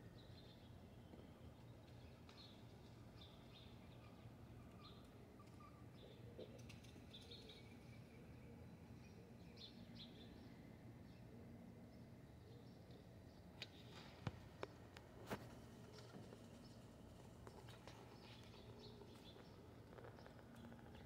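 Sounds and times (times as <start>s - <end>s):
quiet background hum: 0.0s - 21.0s
faint bird chirps: 0.2s - 14.8s.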